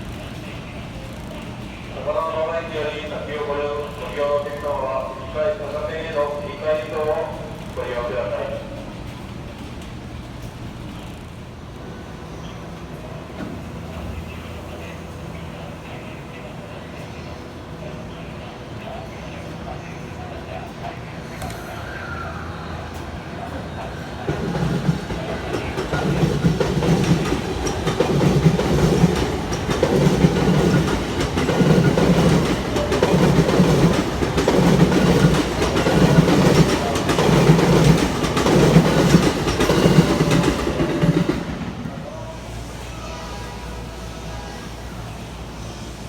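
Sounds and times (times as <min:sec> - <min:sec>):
train rumble: 0:00.0 - 0:46.0
train wheels clacking over rail joints: 0:24.2 - 0:41.9.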